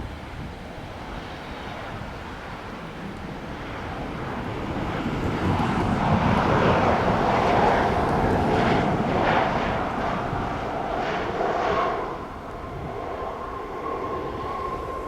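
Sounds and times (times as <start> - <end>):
jet airliner passing: 0.0 - 15.0.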